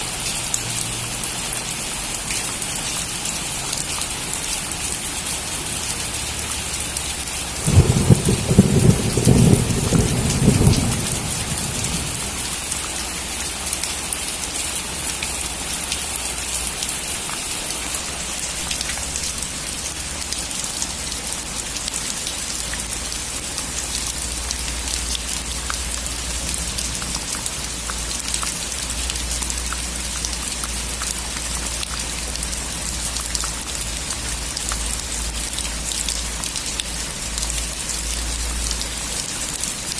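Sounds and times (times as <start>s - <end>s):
heavy rain hissing: 7.1s - 14.5s
thunder rumbling: 7.6s - 12.8s.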